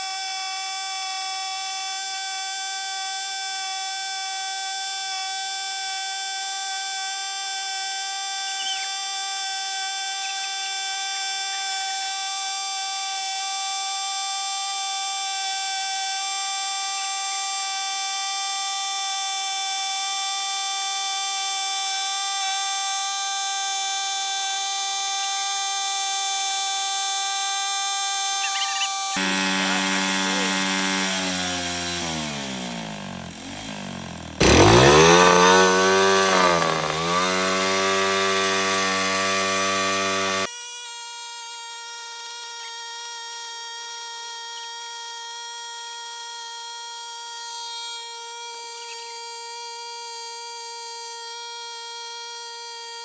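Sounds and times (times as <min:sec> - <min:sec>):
dirt bike engine at high revs: 0:00.0 - 0:40.5.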